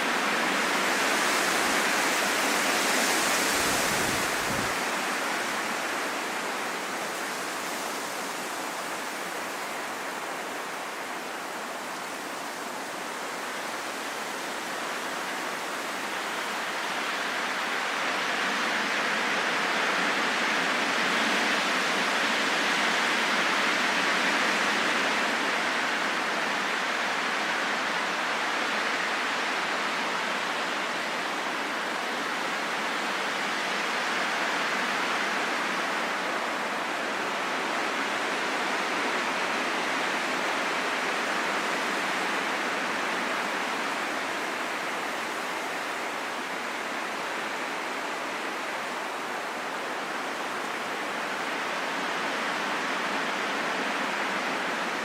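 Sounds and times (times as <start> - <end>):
wind blowing: 0.0 - 12.0.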